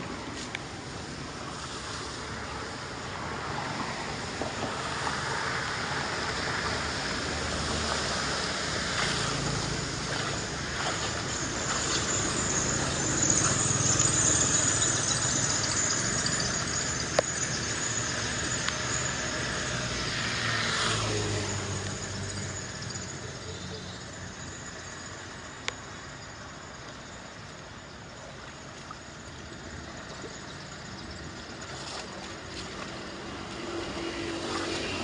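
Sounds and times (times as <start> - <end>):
floodwater rushing: 0.0 - 23.4, 31.2 - 35.0.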